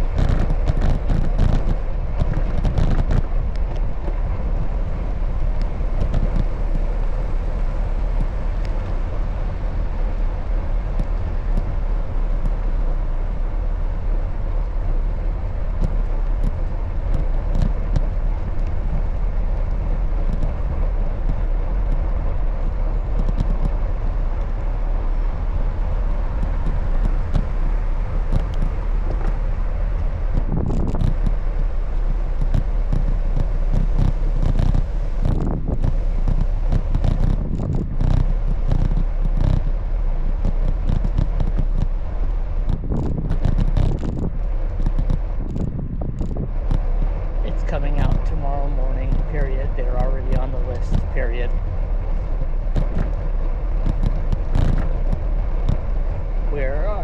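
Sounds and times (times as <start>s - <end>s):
bicycle clicks and rattles: 0.0s - 9.7s, 13.8s - 48.3s, 49.0s - 56.2s
motor traffic rumble: 0.0s - 57.0s
wind and road rush: 0.0s - 57.0s.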